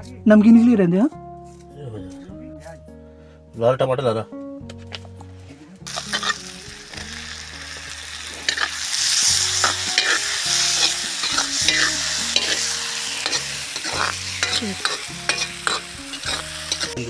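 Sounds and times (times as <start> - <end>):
onions sizzling in oil: 5.9 - 17.0
spoon stirring against pan: 5.9 - 17.0.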